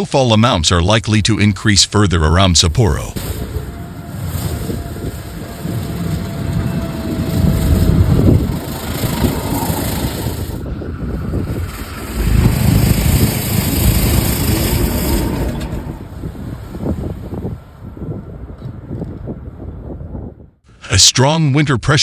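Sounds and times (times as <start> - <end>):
wind rumbling on microphone: 2.8 - 20.6
vehicle engine and traffic: 3.2 - 18.9.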